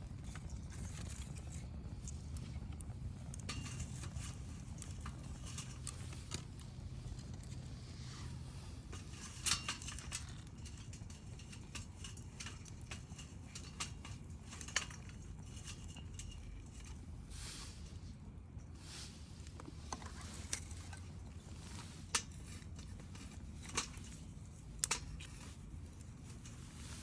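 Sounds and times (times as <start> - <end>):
wood fire crackling and popping: 0.0 - 17.3.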